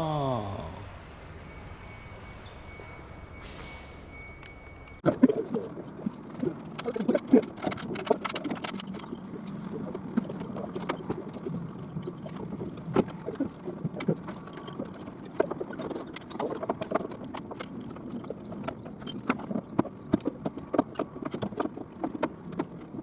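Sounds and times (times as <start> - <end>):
clatter of knocks and clicks: 6.7 - 9.6.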